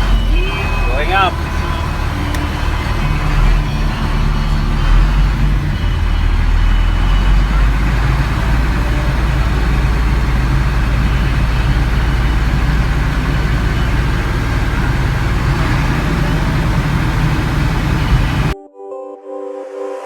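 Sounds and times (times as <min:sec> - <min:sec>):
diesel truck engine running: 0:00.0 - 0:18.6.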